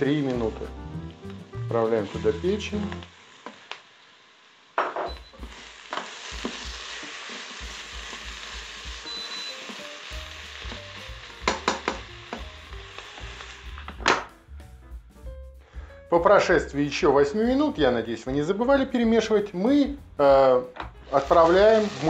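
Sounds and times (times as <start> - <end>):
food sizzling in oil: 0.0 - 14.6, 16.9 - 22.0.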